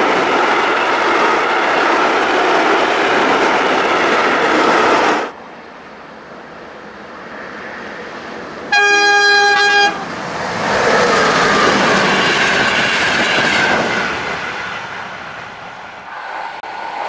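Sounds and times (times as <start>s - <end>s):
passenger train rushing past: 0.0s - 17.0s
locomotive horn blast: 8.7s - 10.2s.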